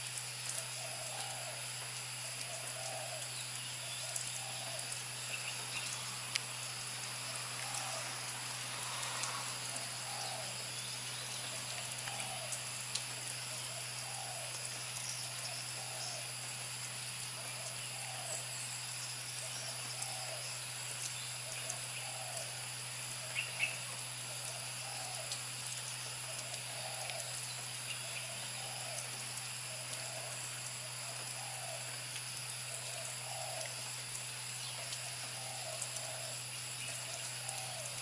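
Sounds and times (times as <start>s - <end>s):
background hiss and hum: 0.0s - 38.0s
bird low call: 34.6s - 38.0s.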